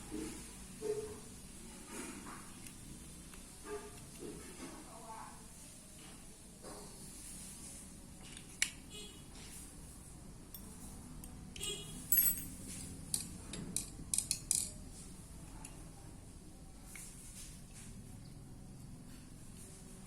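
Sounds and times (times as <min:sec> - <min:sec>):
light metallic clinks: 0:10.5 - 0:10.8, 0:12.0 - 0:12.7.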